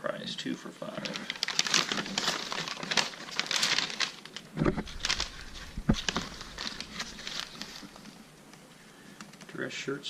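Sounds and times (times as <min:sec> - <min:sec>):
newspaper pages rustling: 0:00.9 - 0:08.4.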